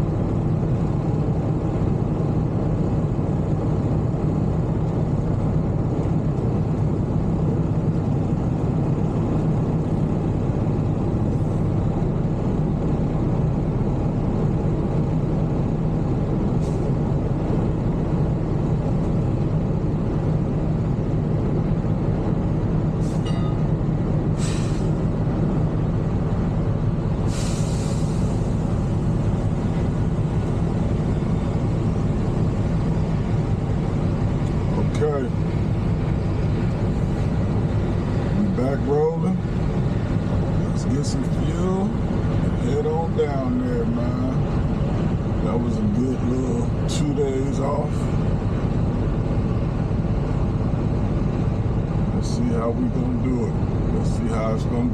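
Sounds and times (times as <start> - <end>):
diesel truck engine running: 0.0 - 54.9
air brake hisses: 23.0 - 23.4, 24.4 - 25.0, 27.3 - 28.4.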